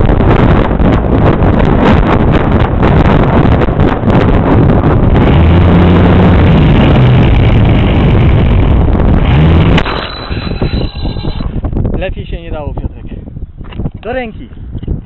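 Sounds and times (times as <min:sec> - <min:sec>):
wind buffeting microphone: 0:00.0 - 0:15.0
low wavering drone: 0:04.7 - 0:11.6.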